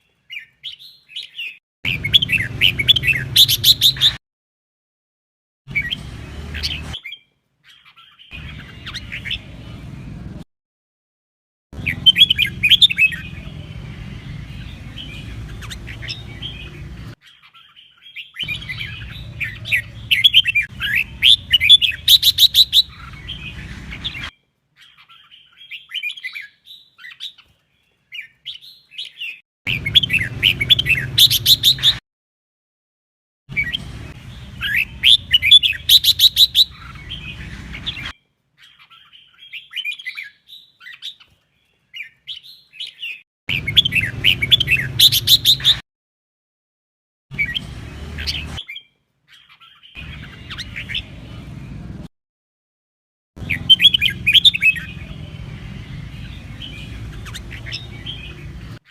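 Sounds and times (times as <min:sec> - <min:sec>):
bird chirping and whistling: 0:00.3 - 0:04.2, 0:05.7 - 0:07.2, 0:07.8 - 0:09.6, 0:11.8 - 0:13.4, 0:14.5 - 0:16.9, 0:17.6 - 0:27.4, 0:28.6 - 0:32.0, 0:33.5 - 0:41.2, 0:42.0 - 0:45.8, 0:47.3 - 0:51.2, 0:53.4 - 0:55.3, 0:55.9 - 0:58.8.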